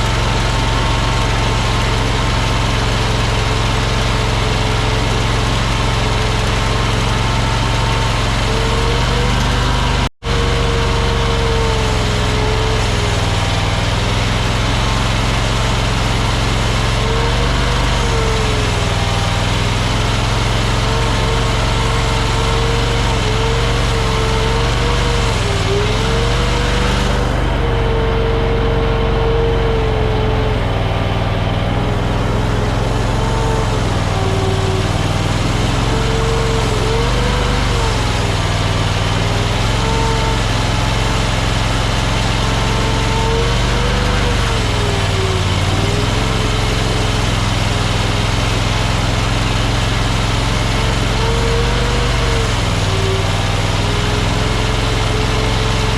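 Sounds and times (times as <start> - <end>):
skid steer engine whining: 0.0 - 55.9.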